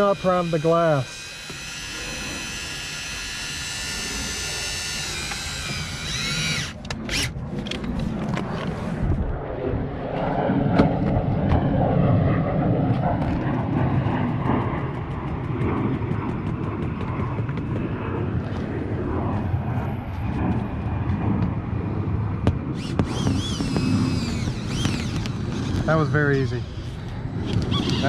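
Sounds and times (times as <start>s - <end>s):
winch whining: 0.0s - 7.4s, 22.8s - 25.8s, 26.6s - 28.0s
rough scraping rumble with ticks: 0.0s - 9.4s, 12.8s - 21.6s, 22.8s - 28.0s.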